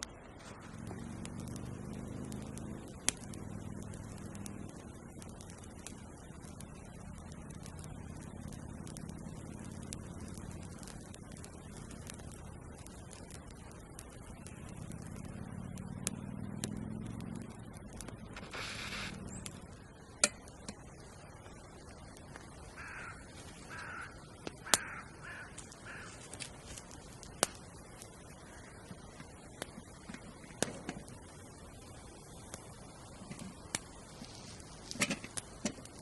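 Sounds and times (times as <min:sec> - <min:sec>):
sharp snaps and cracks: 0:00.0 - 0:36.0
crow cawing: 0:22.7 - 0:26.4, 0:28.4 - 0:28.9.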